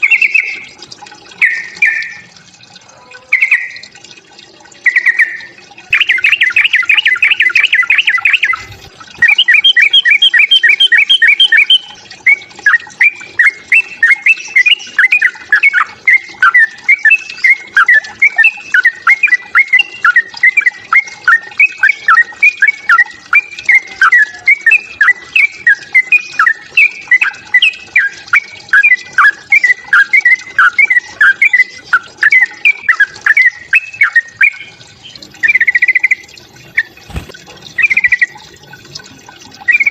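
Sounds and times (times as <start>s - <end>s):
bird fast chattering: 0.0s - 0.8s, 1.4s - 2.3s, 3.1s - 3.9s, 35.4s - 38.4s.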